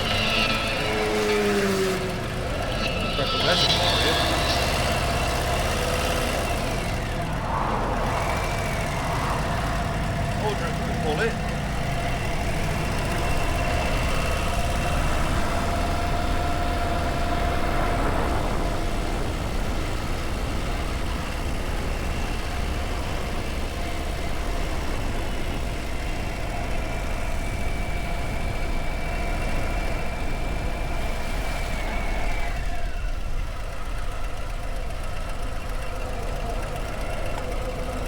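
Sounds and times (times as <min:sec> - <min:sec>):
motorcycle engine running: 0:00.0 - 0:38.0
road noise: 0:00.0 - 0:38.0
wind noise: 0:06.6 - 0:14.5.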